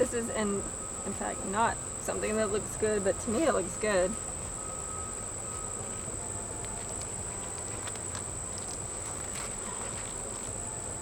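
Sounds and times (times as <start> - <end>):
honeybees buzzing: 0.0 - 11.0
steady high-pitched tone: 0.0 - 11.0.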